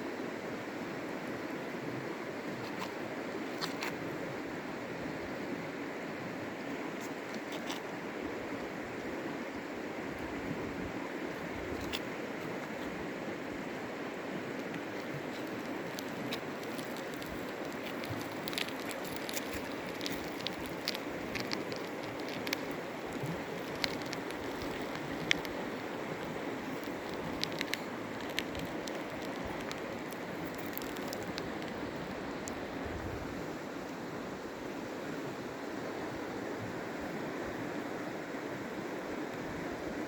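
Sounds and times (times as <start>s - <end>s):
sharp ticks and splashes: 14.4s - 32.7s.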